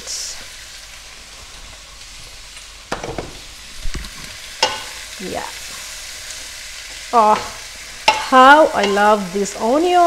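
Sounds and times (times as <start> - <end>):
meat and vegetables sizzling: 0.0 - 10.0
wooden spoons knocking on pan: 2.9 - 3.4, 7.3 - 9.2.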